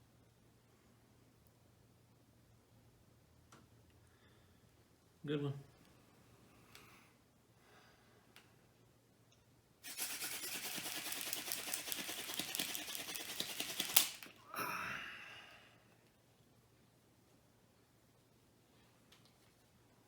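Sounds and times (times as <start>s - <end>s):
hand drill friction ticking: 9.9s - 14.3s.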